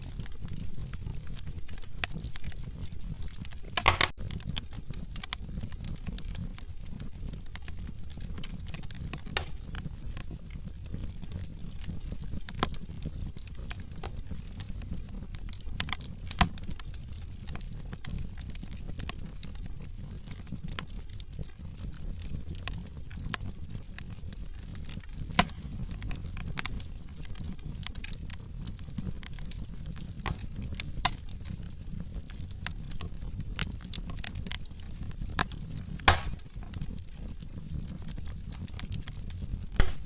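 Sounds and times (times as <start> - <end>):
logs crackling in fireplace: 0.0 - 40.0
low rumble of flames: 0.0 - 40.0
sharp wood pops: 3.8 - 4.2, 9.2 - 9.8, 25.3 - 26.0, 36.0 - 36.5, 39.8 - 40.0.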